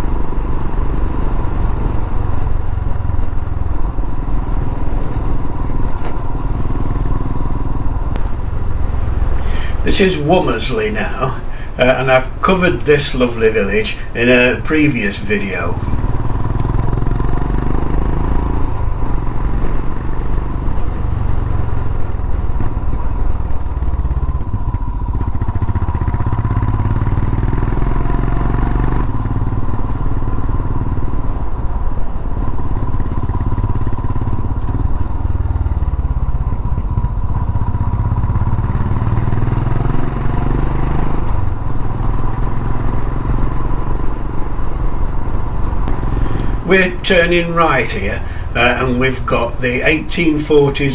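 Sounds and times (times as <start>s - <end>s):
motorcycle engine running: 33.5s - 40.6s.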